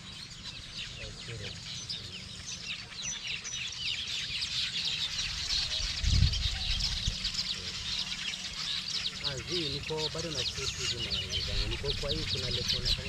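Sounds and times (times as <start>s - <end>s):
birds chirping in chorus: 0.0s - 13.0s
low rumble on microphone: 5.2s - 7.8s.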